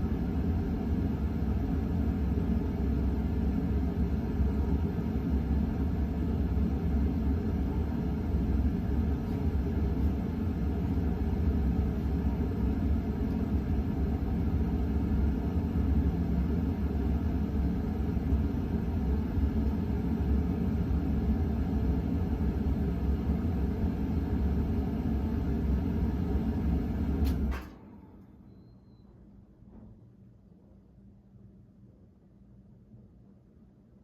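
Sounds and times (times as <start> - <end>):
ceiling fan low rumble: 0.0 - 34.0.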